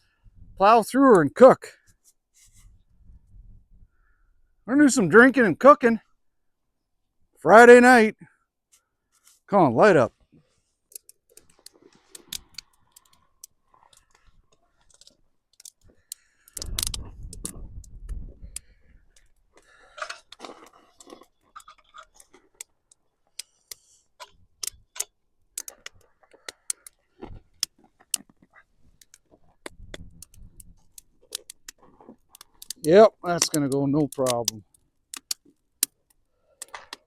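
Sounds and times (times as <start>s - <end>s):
wind rumbling on microphone: 0.2s - 0.6s, 2.6s - 4.0s, 16.6s - 19.0s, 29.7s - 30.9s
campfire crackling and popping: 9.8s - 37.0s.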